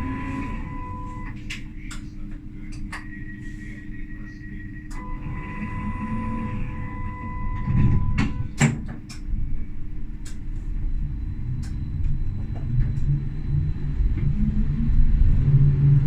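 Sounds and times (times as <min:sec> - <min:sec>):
steady beeping tone: 0:00.0 - 0:01.4, 0:05.0 - 0:08.6
tram motors and wheels rumbling: 0:00.0 - 0:16.0.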